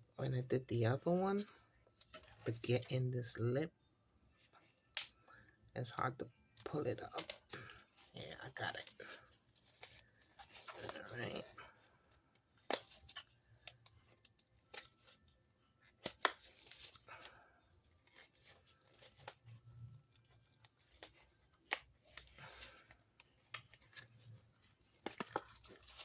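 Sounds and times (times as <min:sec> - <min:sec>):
rubbery rustling and scraping: 0:07.7 - 0:11.8, 0:18.0 - 0:26.0.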